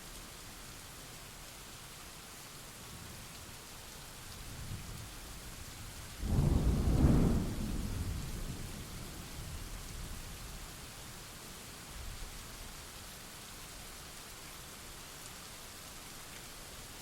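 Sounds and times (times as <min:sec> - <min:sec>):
steady rain: 0:00.0 - 0:17.0
thunder rumbling and cracking: 0:06.2 - 0:09.3.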